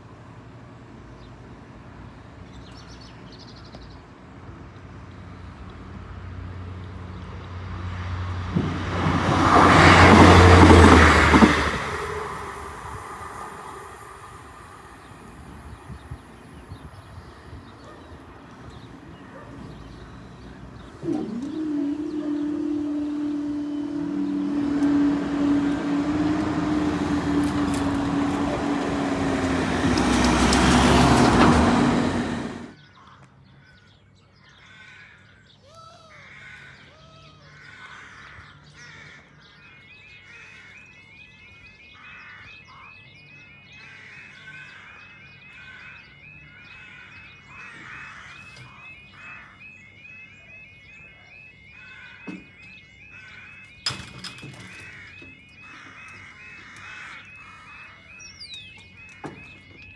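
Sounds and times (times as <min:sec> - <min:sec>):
train passing: 0:06.2 - 0:32.8
birds chirping: 0:09.4 - 0:59.9.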